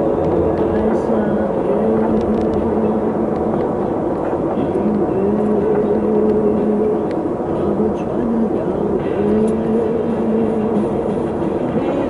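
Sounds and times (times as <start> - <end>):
road noise: 0.0 - 12.0
vehicle engine droning: 0.0 - 12.0.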